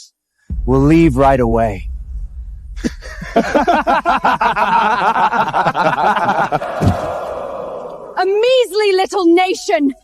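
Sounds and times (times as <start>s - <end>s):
voices laughing mockingly: 2.8s - 7.9s.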